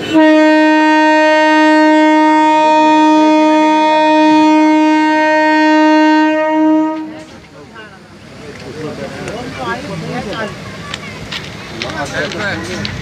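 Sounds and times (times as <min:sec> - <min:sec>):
train horn blast: 0:00.0 - 0:07.4.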